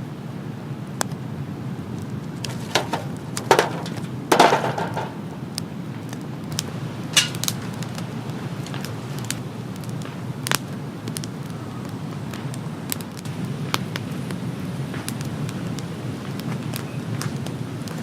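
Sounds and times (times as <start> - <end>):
steady rain: 0.0 - 18.0
heavy raindrops tapping: 2.3 - 10.6.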